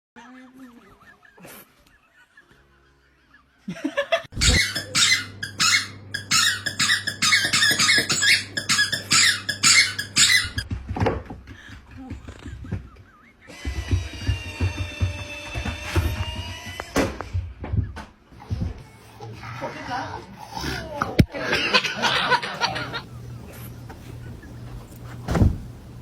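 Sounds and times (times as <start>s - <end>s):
loud high squeaks: 4.4s - 10.7s
steady low hum: 22.8s - 26.0s.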